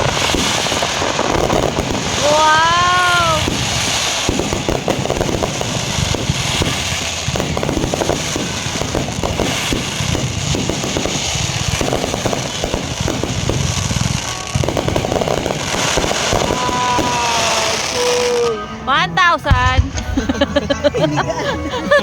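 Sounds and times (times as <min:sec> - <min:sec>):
fireworks crackling pops: 0:00.0 - 0:18.6, 0:19.5 - 0:20.2
low booming: 0:19.4 - 0:20.7.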